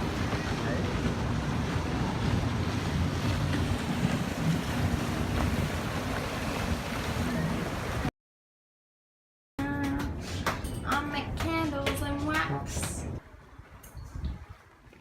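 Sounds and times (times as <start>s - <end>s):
wind buffeting microphone: 10.9s - 15.0s.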